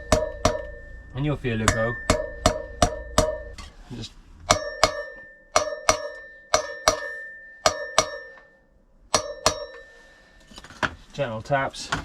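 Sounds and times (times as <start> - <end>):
hammer tapping metal: 0.0 - 3.7, 4.5 - 10.0.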